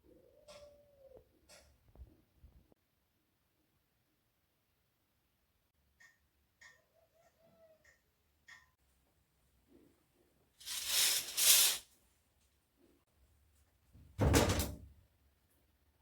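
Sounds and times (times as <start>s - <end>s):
object sliding or scraping: 10.6s - 11.8s.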